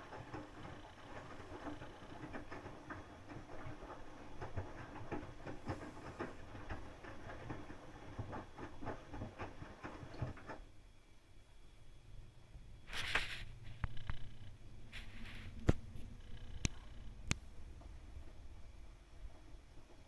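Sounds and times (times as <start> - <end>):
washing machine drum turning: 0.0 - 10.6
laundry tumbling with soft knocks: 0.0 - 11.0.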